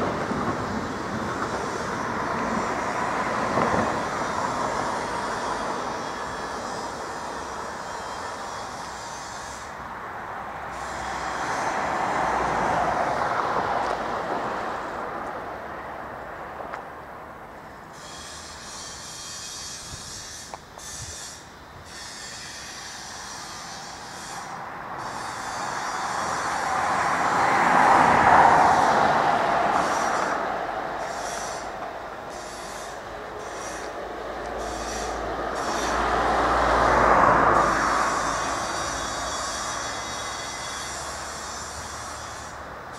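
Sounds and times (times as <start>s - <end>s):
vehicle passing by: 8.9s - 17.0s, 23.6s - 42.9s.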